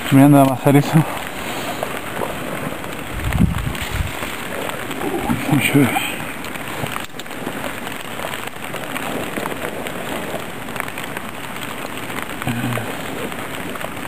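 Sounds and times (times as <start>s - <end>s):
raindrops hitting near microphone: 0.0s - 14.0s
steady rain falling: 0.0s - 14.0s.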